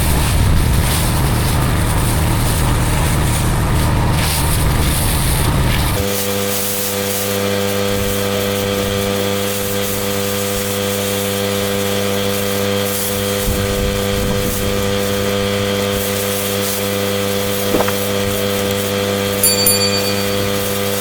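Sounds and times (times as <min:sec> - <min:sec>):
small knock: 0:17.7 - 0:18.0.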